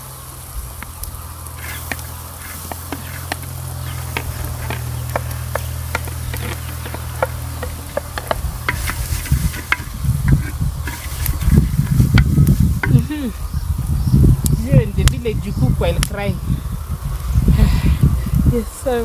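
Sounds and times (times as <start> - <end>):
vegetables sizzling in oil: 0.0 - 14.8
crackles and pops: 0.1 - 16.4
stirring: 1.6 - 13.0.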